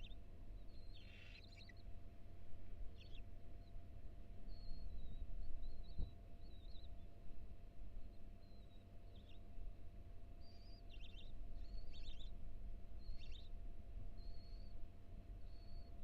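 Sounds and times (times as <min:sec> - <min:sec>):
songbird singing: 0:00.0 - 0:01.9, 0:02.9 - 0:03.8, 0:04.4 - 0:07.2, 0:08.0 - 0:09.6, 0:10.4 - 0:12.4, 0:13.0 - 0:16.0.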